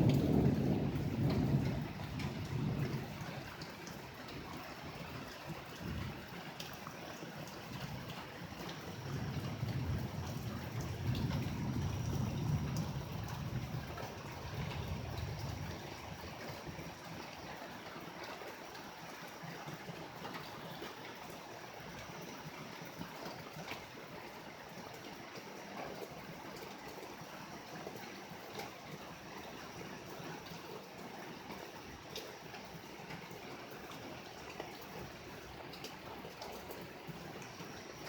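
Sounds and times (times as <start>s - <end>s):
thunder rumbling: 0.0s - 3.7s, 8.9s - 16.8s
steady rain: 0.0s - 38.0s
water trickling and dripping: 0.0s - 38.0s.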